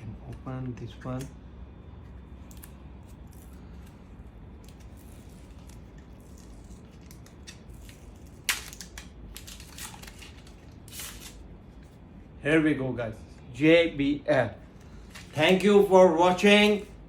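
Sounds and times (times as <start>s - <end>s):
packaging crackle: 2.4s - 11.4s
packaging rustling: 4.6s - 11.4s.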